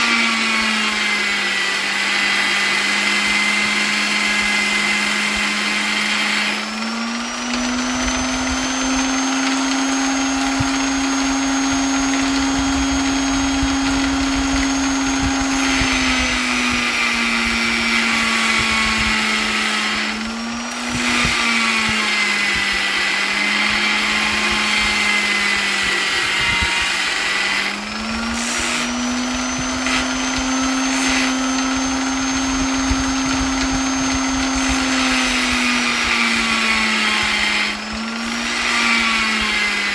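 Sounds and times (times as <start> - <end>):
electric polisher motor whining: 0.0 - 39.9.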